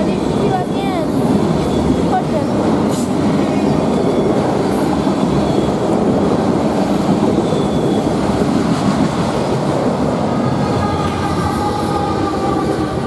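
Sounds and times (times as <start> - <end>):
train wheels rumbling on rails: 0.0 - 13.0
high wheel squeals: 2.9 - 8.9.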